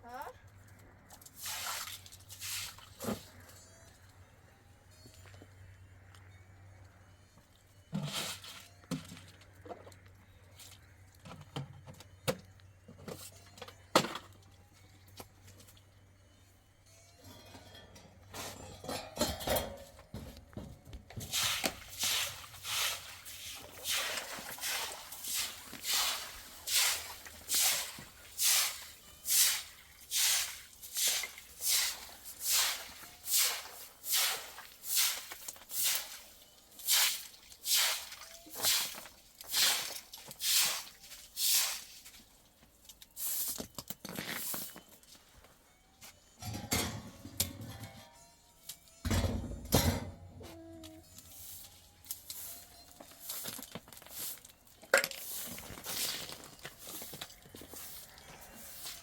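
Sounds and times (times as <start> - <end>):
footsteps crunching through snow: 51.3 - 54.6, 55.2 - 59.0.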